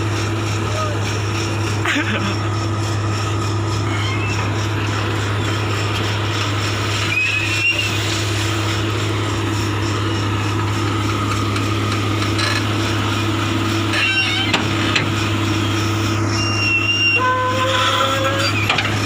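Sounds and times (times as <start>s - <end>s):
excavator diesel engine running: 0.0s - 19.0s
high squeal: 2.5s - 8.9s, 13.7s - 19.0s.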